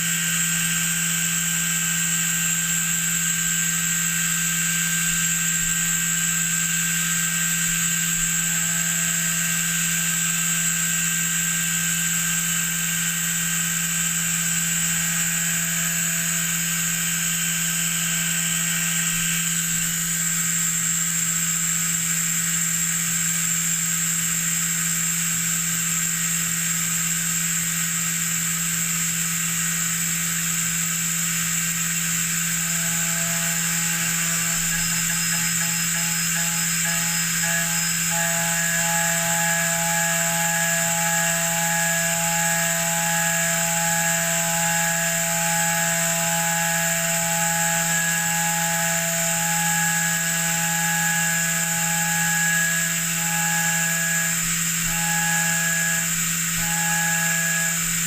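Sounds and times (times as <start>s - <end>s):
high whine: 0.0s - 20.5s, 31.4s - 58.0s
machine hum: 0.0s - 21.3s, 30.3s - 58.0s
metal cutting noise: 31.2s - 58.0s.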